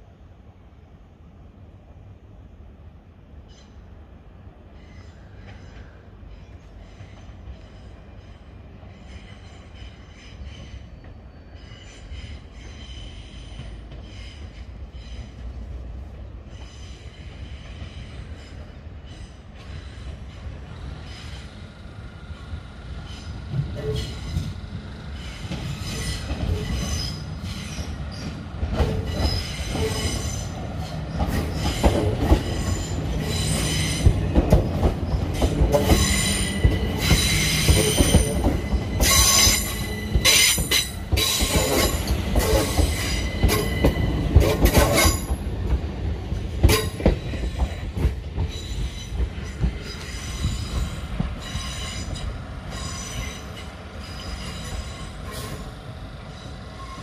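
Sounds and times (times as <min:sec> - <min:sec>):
train wheels squealing: 0:03.4 - 0:04.0, 0:04.6 - 0:15.7, 0:16.3 - 0:45.5, 0:46.6 - 0:57.0
wheels clicking over rail joints: 0:31.1 - 0:53.3.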